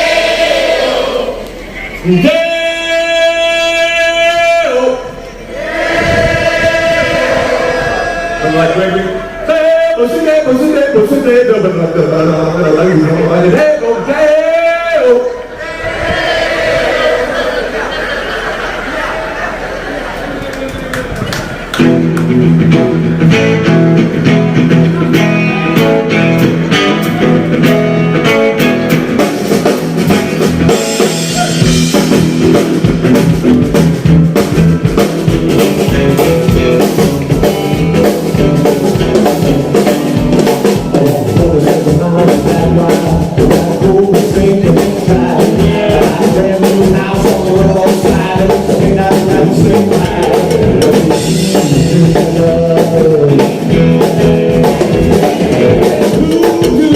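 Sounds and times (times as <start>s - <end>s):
electric guitar: 20.7s - 56.9s
live band playing blues-rock: 21.0s - 56.9s
drum kit beat: 21.8s - 56.9s.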